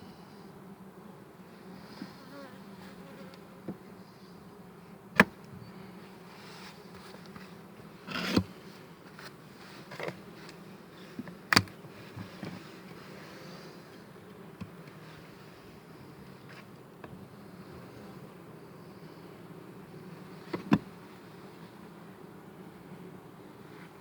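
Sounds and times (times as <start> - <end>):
honeybees buzzing: 0.0 - 24.0
sharp knocks on hive: 5.1 - 5.4, 20.5 - 20.9
short scrape: 8.1 - 8.5.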